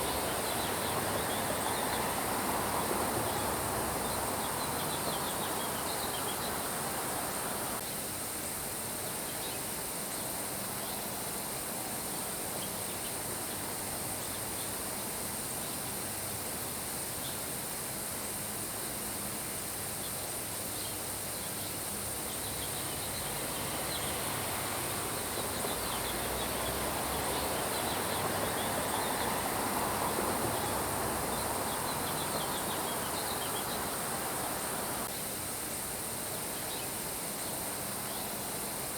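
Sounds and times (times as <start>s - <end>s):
rain hiss: 0.0s - 38.9s.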